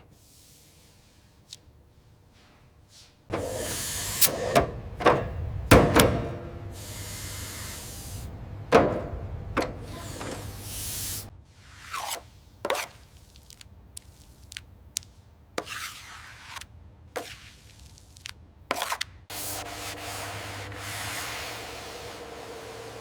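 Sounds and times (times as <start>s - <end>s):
rubbing and scraping strokes: 19.3s - 23.0s.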